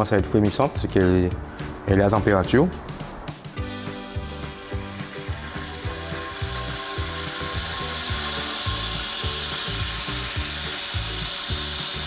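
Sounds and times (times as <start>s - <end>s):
background music with low beat: 0.0s - 12.0s
food sizzling in hot oil: 3.8s - 12.0s.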